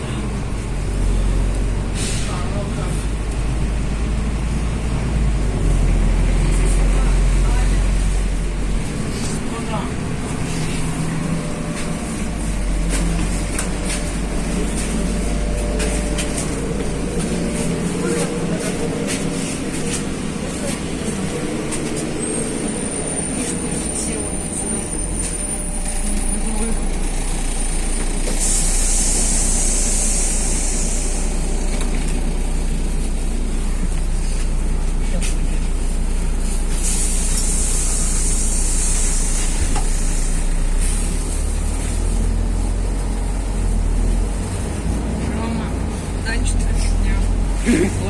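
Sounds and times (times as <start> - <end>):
bus engine drone: 0.0 - 48.0
high hiss: 28.4 - 31.6.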